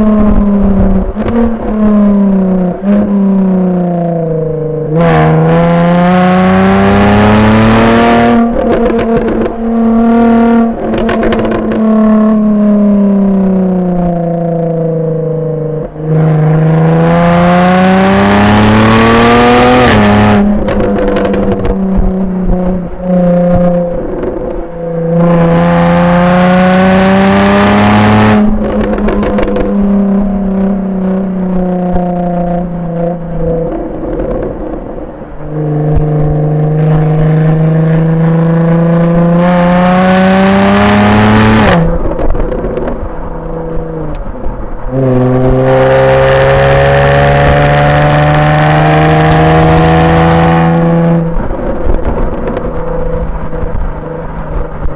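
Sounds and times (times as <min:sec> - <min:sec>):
exhaust pops and crackles: 0:00.0 - 0:03.2, 0:08.3 - 0:12.5, 0:19.8 - 0:25.5, 0:28.2 - 0:38.1, 0:41.4 - 0:45.8, 0:50.7 - 0:54.9
car engine accelerating hard: 0:00.0 - 0:54.9.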